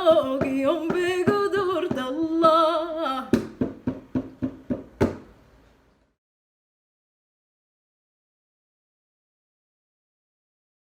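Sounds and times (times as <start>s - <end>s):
woman singing: 0.0s - 3.6s.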